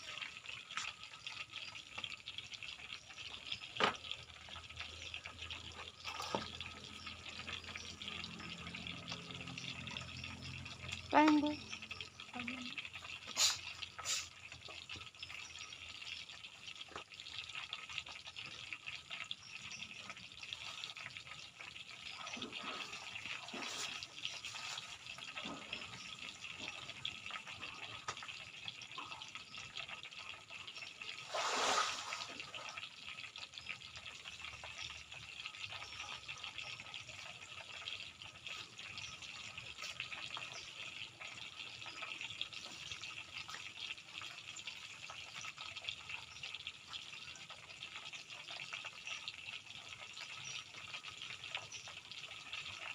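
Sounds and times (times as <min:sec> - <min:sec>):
tofu sizzling in hot oil: 0:00.0 - 0:52.9.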